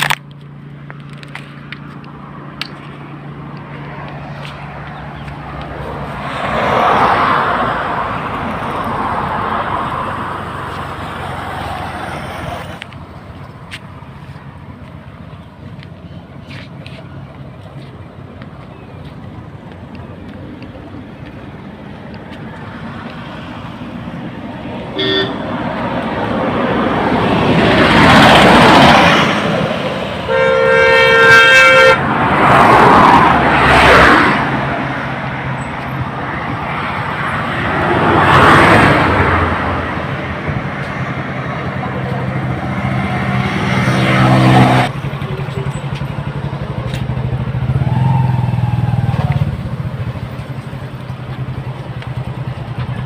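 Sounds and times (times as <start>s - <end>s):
vehicles passing: 0.0s - 53.0s
short horn beep: 24.9s - 25.5s, 30.3s - 32.0s
vehicle horn: 24.9s - 25.6s, 30.2s - 32.1s.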